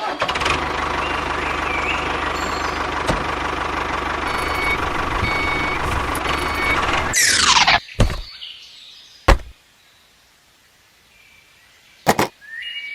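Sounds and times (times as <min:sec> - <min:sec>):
small tractor engine running: 0:00.0 - 0:07.2
short high beeps: 0:04.3 - 0:07.2.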